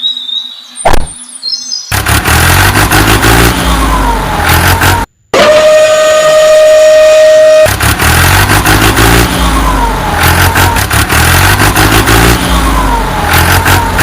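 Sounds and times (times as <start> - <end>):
truck engine rumble: 1.9 - 14.0
steady horn-like tone: 5.3 - 7.8.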